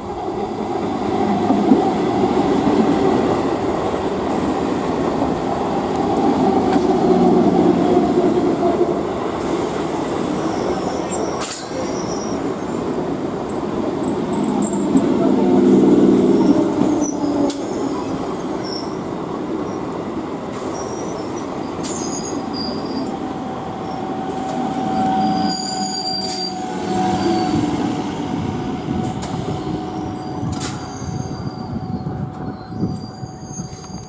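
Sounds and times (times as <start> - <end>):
train wheels rumbling on rails: 0.0 - 34.0
high wheel squeal: 20.6 - 23.1, 23.8 - 28.0, 29.8 - 34.0.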